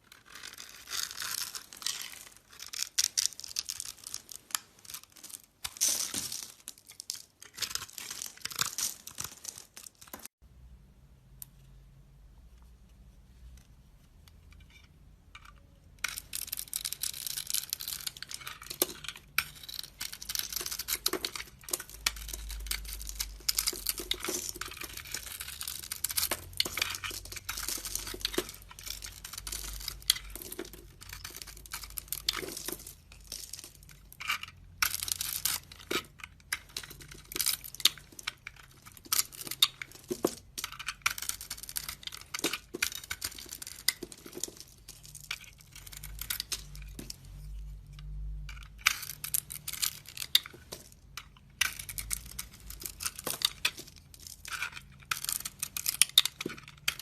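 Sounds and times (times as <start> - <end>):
knife scraping soap: 0.2 - 3.0, 17.1 - 30.3.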